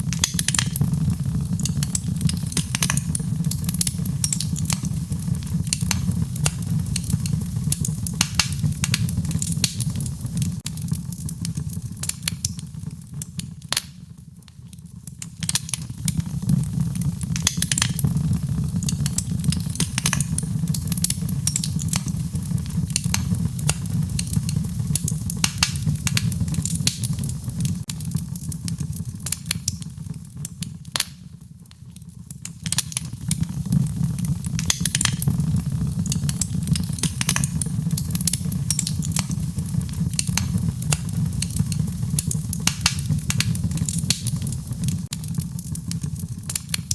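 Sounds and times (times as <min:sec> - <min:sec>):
wood fire crackling and popping: 0:00.0 - 0:46.9.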